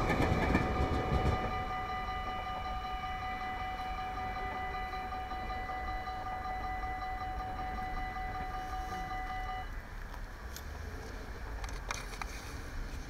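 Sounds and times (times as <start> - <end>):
level-crossing warning bells: 0.0 - 9.8.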